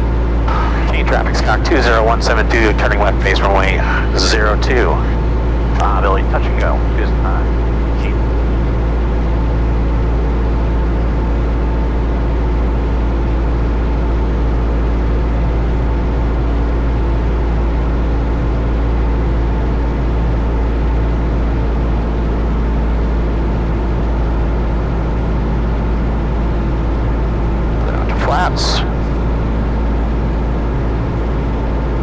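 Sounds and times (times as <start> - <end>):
light aircraft cabin drone: 0.0 - 32.0.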